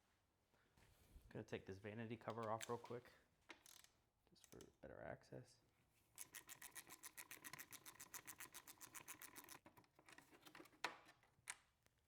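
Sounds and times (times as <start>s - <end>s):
hand ratchet clicking: 3.6s - 3.9s.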